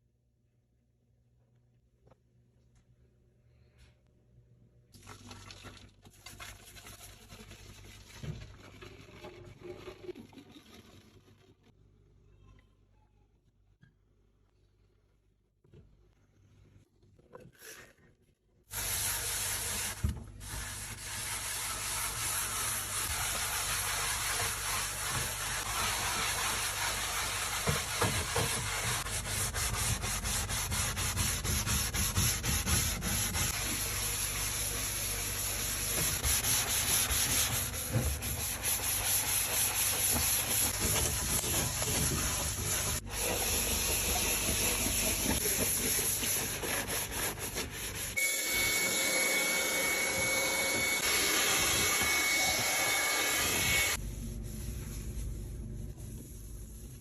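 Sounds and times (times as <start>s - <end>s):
scrubbing a hard surface: 18.7s - 48.2s.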